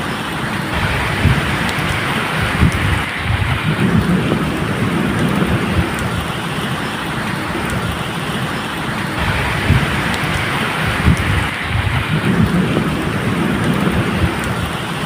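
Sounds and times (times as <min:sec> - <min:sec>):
medium rain falling: 0:00.0 - 0:15.0
low rumble of thunder: 0:00.7 - 0:06.4, 0:09.2 - 0:14.9.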